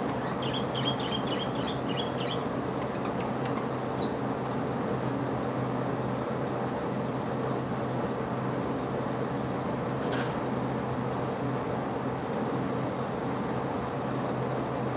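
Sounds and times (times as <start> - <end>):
small birds chirping: 0.0 - 4.2
steady mechanical hum: 0.0 - 14.9.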